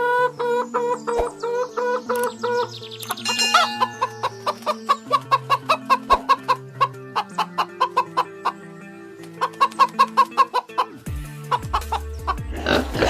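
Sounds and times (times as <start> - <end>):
chicken clucking: 0.0 - 12.8
music with low chords: 1.3 - 8.2, 10.9 - 13.0.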